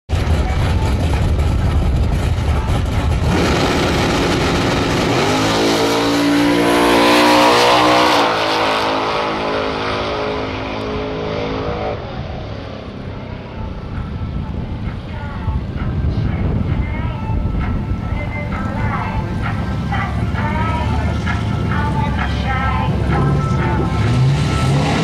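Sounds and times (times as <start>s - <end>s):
racing car engine revving: 0.1s - 13.8s, 18.7s - 25.0s.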